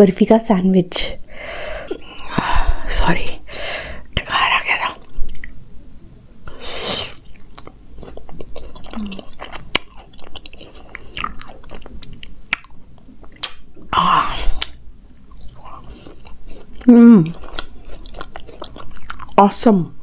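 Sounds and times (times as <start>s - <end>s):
chewing and biting food: 6.5s - 13.9s, 14.6s - 19.4s
wet mouth clicks: 13.4s - 13.6s.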